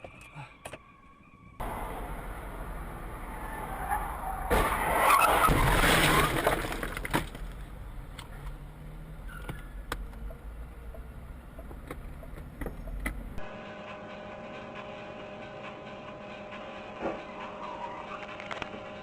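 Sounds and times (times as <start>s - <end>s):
car crash: 1.6s - 7.8s.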